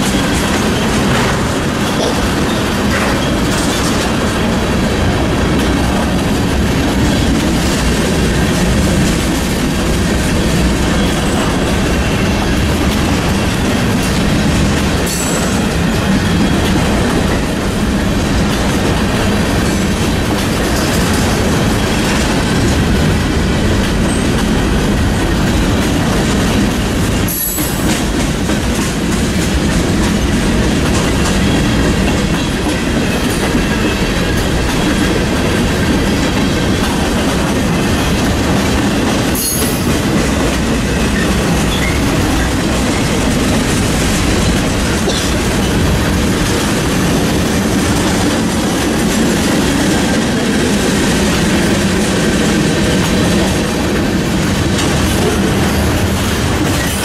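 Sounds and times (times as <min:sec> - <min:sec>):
freight train wheels rolling: 0:00.0 - 0:57.0.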